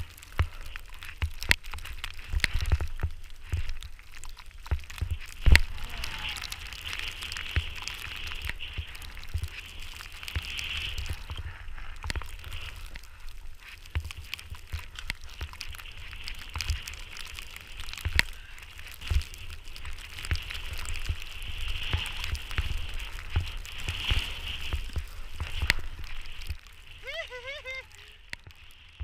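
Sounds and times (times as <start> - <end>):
wind rumbling on microphone: 0.0 - 29.0
snowboard hissing through snow: 5.3 - 13.2, 18.4 - 28.3.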